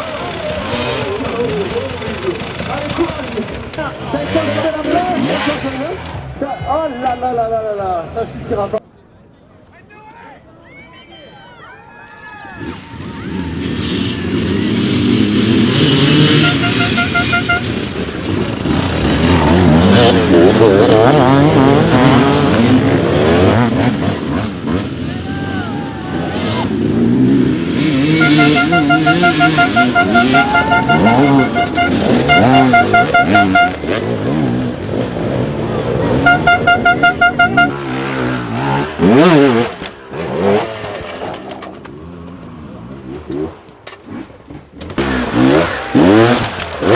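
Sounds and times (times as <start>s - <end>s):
dirt bike engine under load: 0.0s - 7.2s, 13.6s - 25.2s, 25.8s - 46.9s
short high horn beeps: 16.0s - 17.9s, 27.8s - 34.5s, 36.0s - 38.7s.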